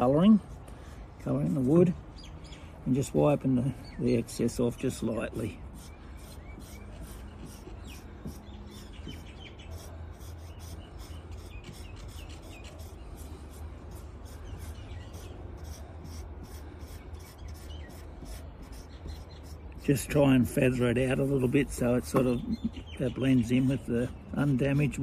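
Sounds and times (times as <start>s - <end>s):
rubbing on wooden tabletop: 5.8s - 13.0s.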